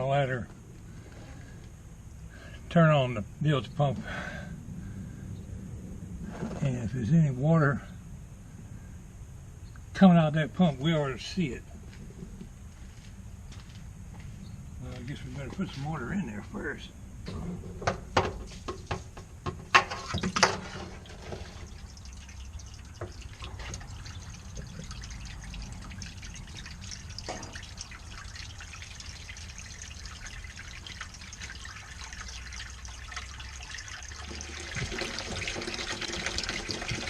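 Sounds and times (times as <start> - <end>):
sharp knocks and clatters: 17.2 - 21.6
water running into boat: 19.7 - 37.0.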